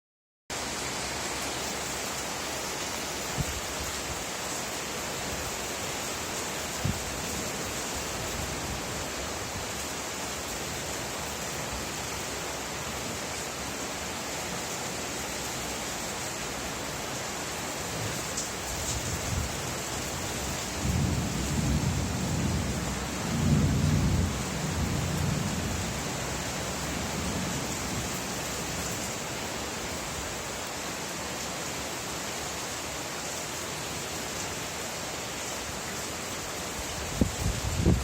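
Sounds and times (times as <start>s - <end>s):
steady rain: 0.5s - 38.0s
low roll of thunder: 20.8s - 26.0s.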